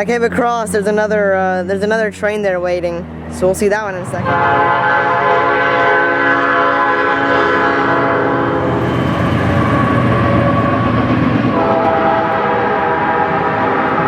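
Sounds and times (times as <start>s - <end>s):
passing train rumble: 0.0s - 14.0s
train horn chord: 4.0s - 14.0s.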